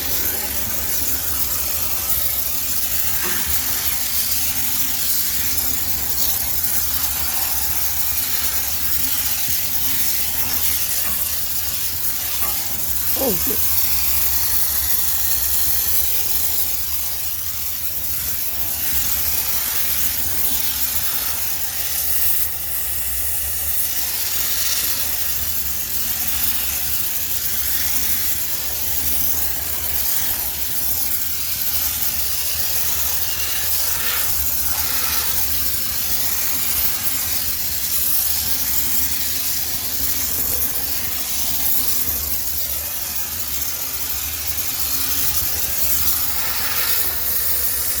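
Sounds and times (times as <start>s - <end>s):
steam hissing: 0.0s - 48.0s.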